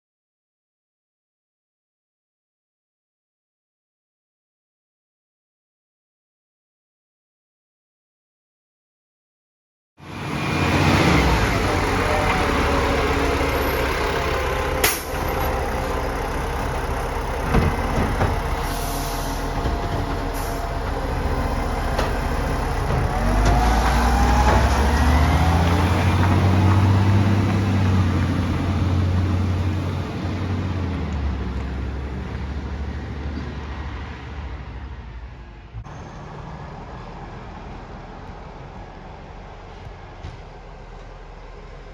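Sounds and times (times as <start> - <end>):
garbage truck engine: 10.0 - 41.9.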